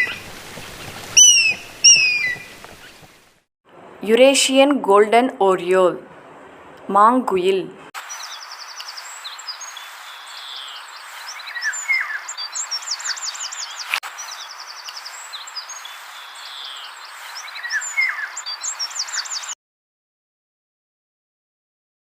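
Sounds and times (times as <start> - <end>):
oriole calling: 0.0 - 3.2
steady natural hiss: 0.0 - 19.5
other birds whistling and chirping: 1.2 - 2.5, 8.2 - 19.5.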